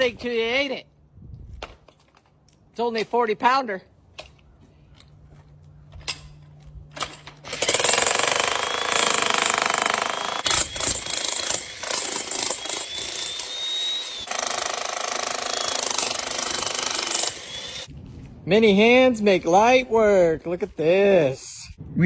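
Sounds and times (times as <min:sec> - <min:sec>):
jackhammer hammering: 0:07.4 - 0:17.9.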